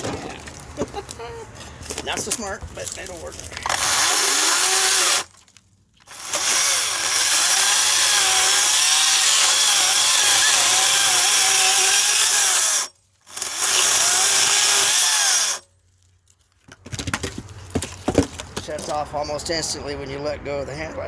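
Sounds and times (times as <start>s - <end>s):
chainsaw cutting wood: 3.6s - 5.4s, 6.0s - 15.7s.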